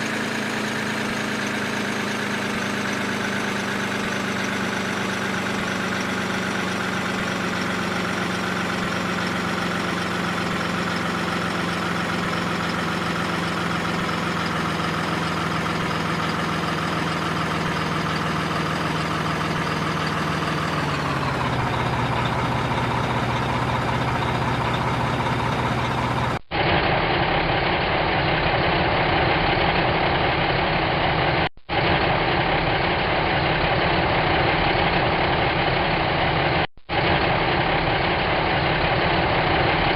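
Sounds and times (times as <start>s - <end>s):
dull drone: 0.0s - 28.6s
engine-like drone: 0.0s - 39.9s.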